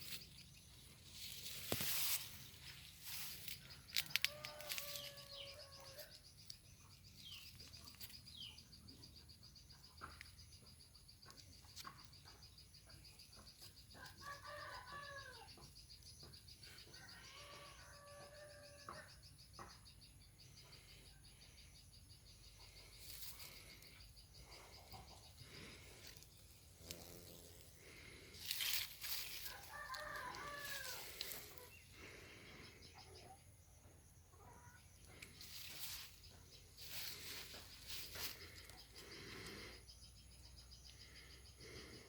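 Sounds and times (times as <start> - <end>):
insect trill: 0.0 - 42.0
faint rooster crowing: 3.2 - 6.3, 13.8 - 15.8, 16.8 - 19.8, 28.4 - 32.1.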